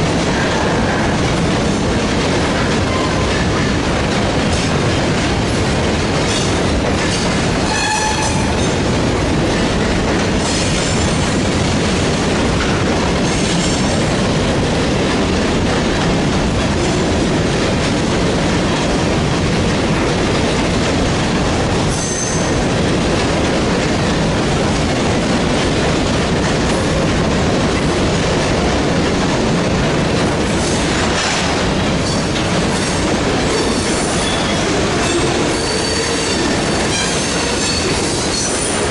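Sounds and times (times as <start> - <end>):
freight train wheels rumbling: 0.0 - 38.9
train wheel squeals: 7.1 - 8.8, 21.9 - 22.6, 33.5 - 38.9.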